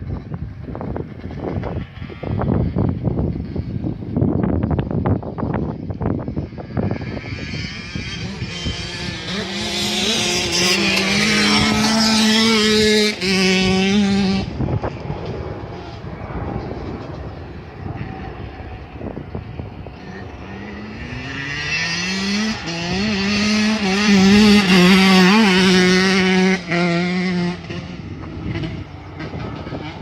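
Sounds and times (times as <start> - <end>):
two-stroke dirt bike revving: 6.0 - 16.5, 17.2 - 30.0.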